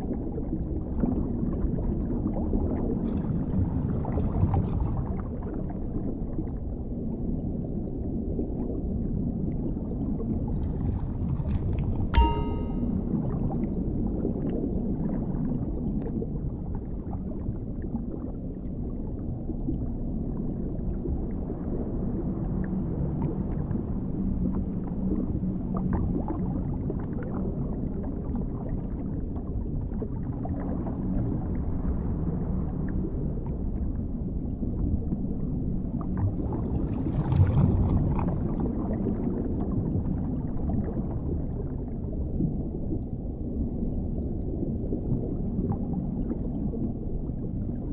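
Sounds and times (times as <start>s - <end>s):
underwater rumble with gurgling: 41.0s - 47.9s.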